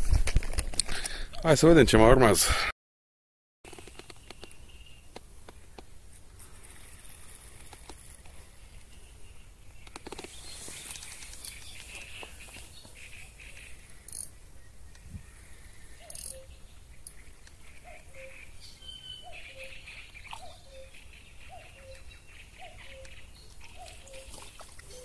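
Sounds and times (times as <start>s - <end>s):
birds or insects chirring: 3.7s - 25.0s
sharp clicks: 9.8s - 10.4s.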